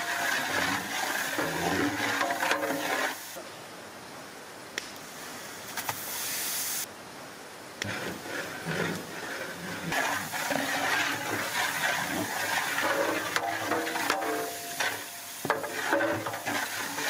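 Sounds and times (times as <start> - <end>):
hot oil sizzling: 0.0 - 3.4, 9.9 - 17.0
metal paddle scraping pot: 0.0 - 3.4, 7.8 - 17.0.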